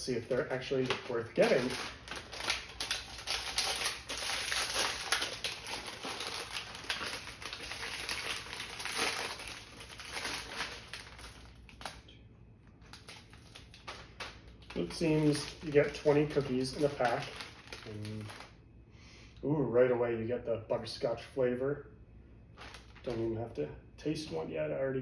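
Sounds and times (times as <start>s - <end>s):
plastic packaging crinkling: 0.0s - 18.6s, 22.6s - 23.3s.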